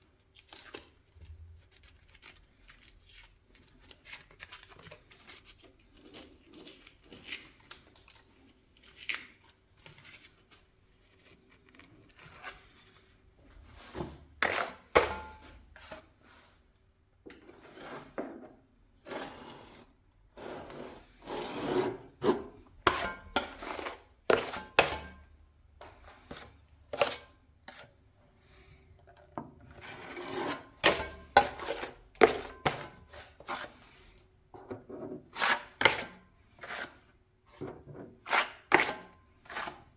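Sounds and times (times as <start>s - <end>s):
hand tool scraping hard surface: 13.7s - 16.1s, 17.3s - 18.3s, 19.0s - 25.2s, 26.3s - 27.9s, 29.8s - 33.8s.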